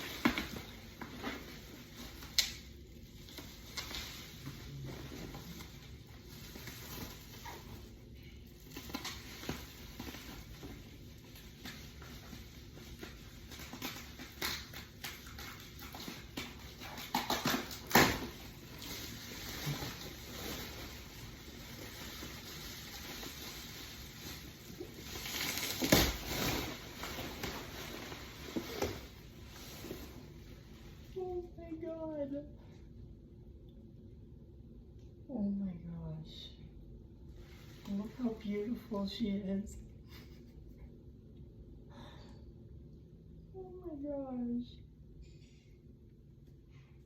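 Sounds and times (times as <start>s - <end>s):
packaging rustling: 0.0s - 30.4s.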